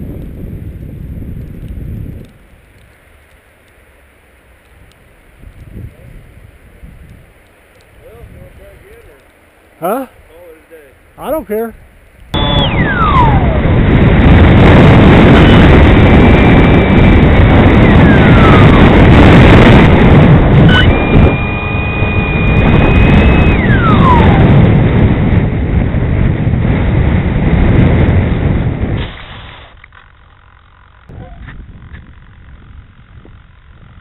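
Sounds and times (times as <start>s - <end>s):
wind rushing over microphone: 0.0s - 3.4s, 4.6s - 9.2s, 11.2s - 29.9s, 31.0s - 34.0s
electric motor whining: 15.3s - 24.5s.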